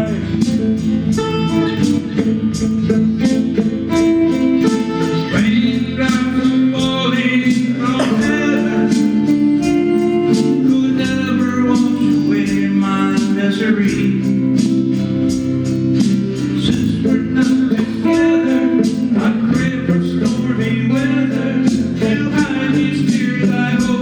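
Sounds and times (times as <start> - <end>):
man singing: 0.0 - 15.0, 16.4 - 24.0
guitar playing: 0.0 - 24.0.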